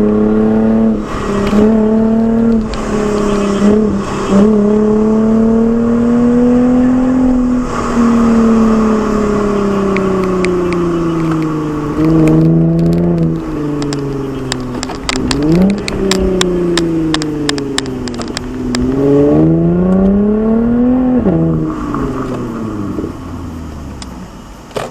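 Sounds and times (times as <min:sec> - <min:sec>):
car engine revving: 0:00.0 - 0:24.9
exhaust crackles: 0:00.0 - 0:24.9.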